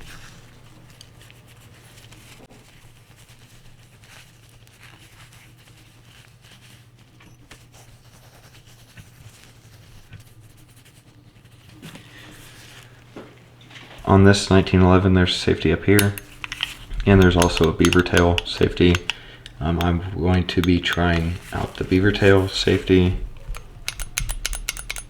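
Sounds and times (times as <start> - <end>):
pistol parts rubbing and clicking: 15.4 - 25.0.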